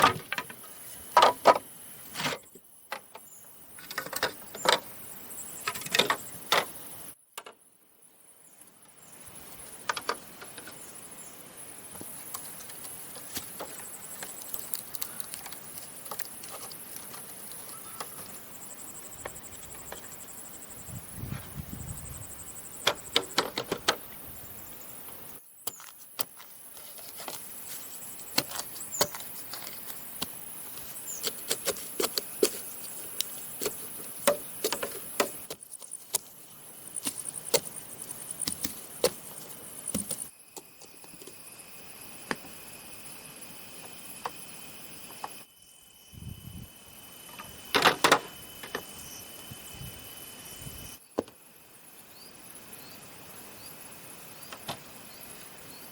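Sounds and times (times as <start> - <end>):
knocks and clicks on bamboo: 0.0 - 1.6, 5.6 - 6.7, 9.8 - 10.8, 22.8 - 24.0, 28.2 - 36.3, 37.0 - 41.4
high insect drone: 7.8 - 55.9.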